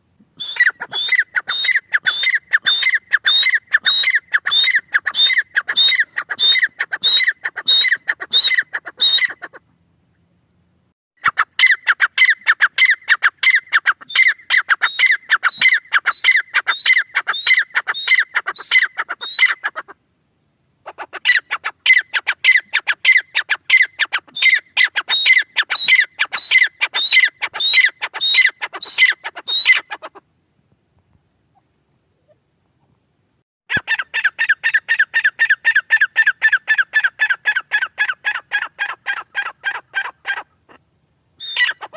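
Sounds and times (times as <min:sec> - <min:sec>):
francolin calling: 0:00.4 - 0:09.7, 0:11.2 - 0:20.0, 0:20.8 - 0:30.2, 0:41.4 - 0:41.9.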